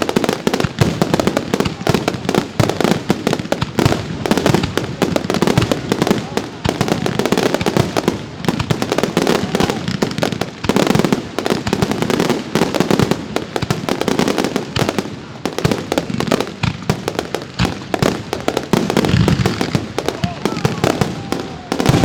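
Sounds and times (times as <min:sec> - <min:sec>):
fireworks bangs and crackling: 0:00.0 - 0:22.0.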